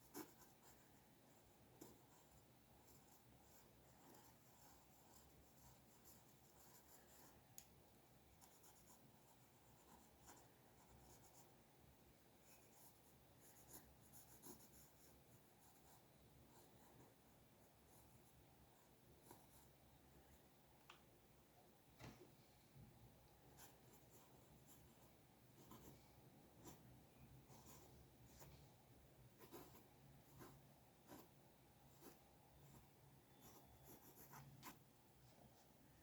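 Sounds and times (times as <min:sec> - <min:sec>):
pencil scratching on paper: 0:00.0 - 0:07.4, 0:08.3 - 0:11.6, 0:12.4 - 0:19.7, 0:23.6 - 0:28.6, 0:29.3 - 0:34.9.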